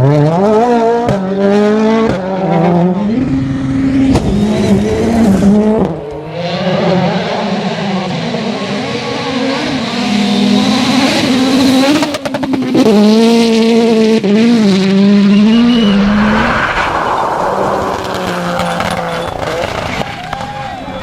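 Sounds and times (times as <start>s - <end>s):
rally car engines at full throttle: 0.0s - 21.0s.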